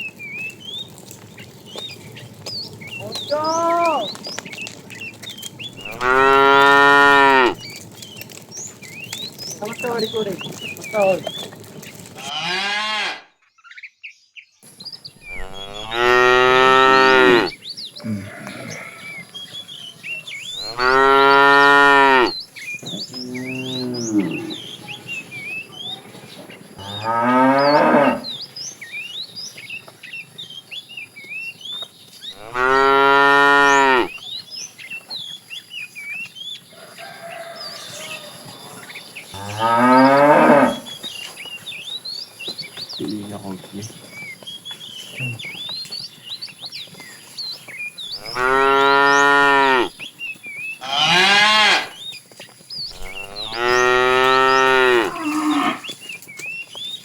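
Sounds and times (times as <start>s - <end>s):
small birds chirping: 0.0s - 12.4s, 13.4s - 57.0s
cattle mooing: 5.8s - 7.6s, 12.2s - 13.3s, 15.3s - 19.2s, 20.6s - 22.4s, 23.0s - 25.0s, 26.8s - 28.4s, 32.4s - 34.1s, 39.4s - 40.9s, 48.2s - 49.9s, 50.8s - 52.0s, 52.9s - 55.9s.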